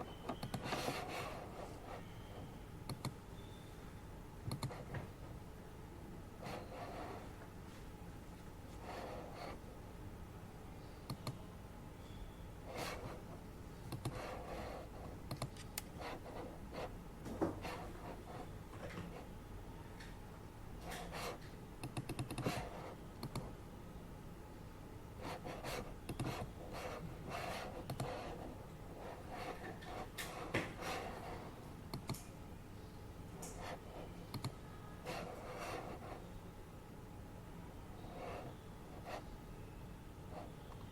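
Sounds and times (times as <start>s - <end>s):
air purifier hum: 0.0s - 40.9s
keyboard clicks: 0.2s - 0.9s, 2.9s - 3.2s, 4.4s - 4.8s, 11.0s - 11.4s, 13.9s - 14.2s, 15.3s - 15.9s, 21.8s - 22.6s, 23.2s - 23.5s, 27.9s - 28.2s, 31.9s - 32.3s, 34.3s - 34.6s.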